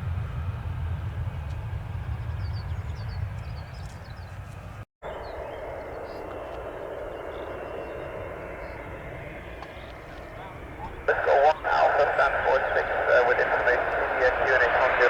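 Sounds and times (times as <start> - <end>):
aircraft engine rumble: 0.0 - 15.0
faint bird chirps: 5.0 - 10.5.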